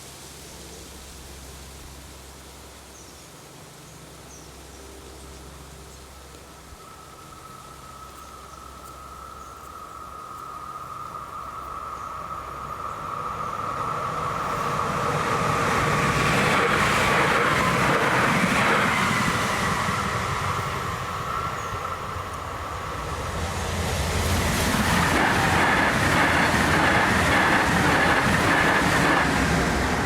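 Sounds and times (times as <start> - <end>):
train passing: 4.8 - 30.0.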